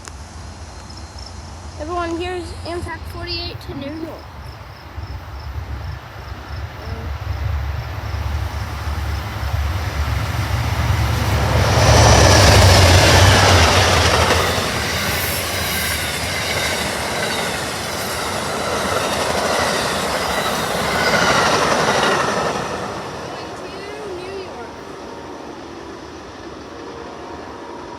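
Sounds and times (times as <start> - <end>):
train engine rumble: 0.0 - 27.9
rail clatter: 5.8 - 26.6.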